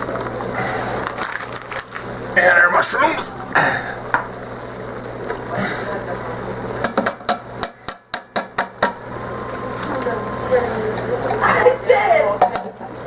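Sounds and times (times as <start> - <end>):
sharp knocks against a pot: 6.8 - 9.0, 12.4 - 12.8.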